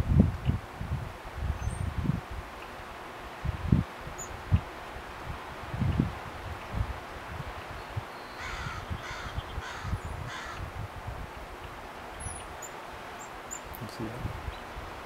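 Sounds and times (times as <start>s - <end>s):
harsh hoarse bird calls: 8.1s - 10.6s.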